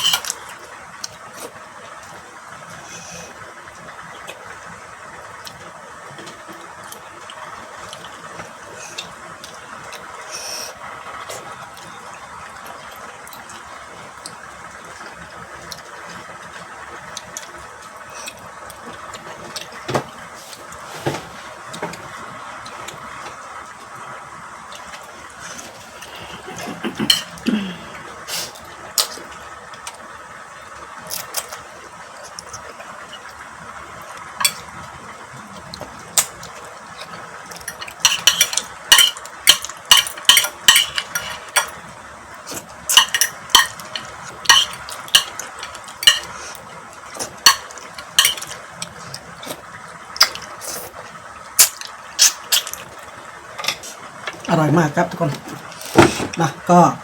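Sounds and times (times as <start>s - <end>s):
utensils clinking on dishes: 0.0s - 0.4s, 25.6s - 27.8s, 36.2s - 41.9s, 42.5s - 49.2s.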